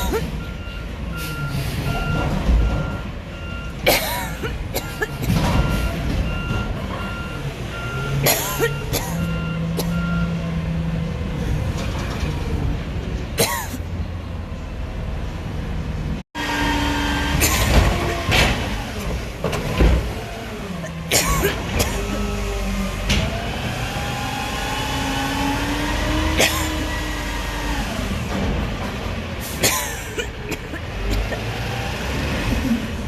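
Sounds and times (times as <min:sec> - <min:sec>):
reversing alarm beeping: 0:00.4 - 0:03.8, 0:05.0 - 0:10.4.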